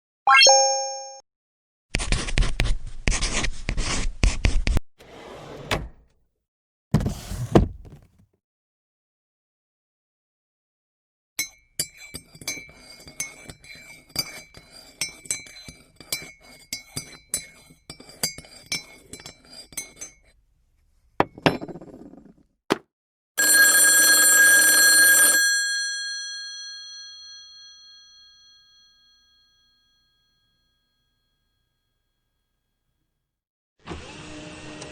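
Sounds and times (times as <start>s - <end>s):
bell ringing: 0.3s - 1.2s.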